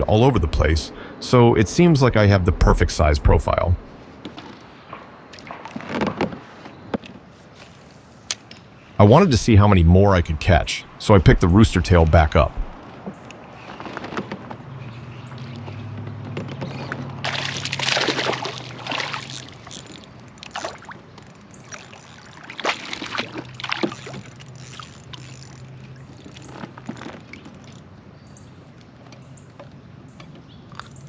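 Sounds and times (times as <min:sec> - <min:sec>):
low steady hum: 0:00.0 - 0:04.3, 0:09.0 - 0:12.8
water splashing and sloshing: 0:03.5 - 0:08.1, 0:11.0 - 0:31.0.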